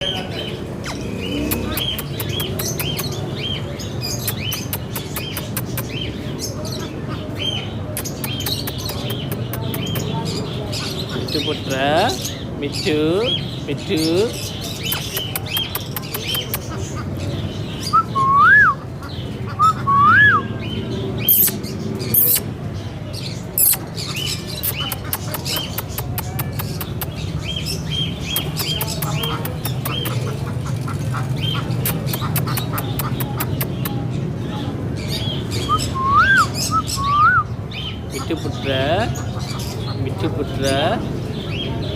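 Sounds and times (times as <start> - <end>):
sharp clicks: 1.5 - 3.2, 4.2 - 5.9, 8.0 - 10.1, 14.8 - 16.7, 24.6 - 27.2, 31.8 - 34.0
parakeet chirping: 21.2 - 22.4, 23.5 - 30.2
parrot whistling: 35.7 - 37.5.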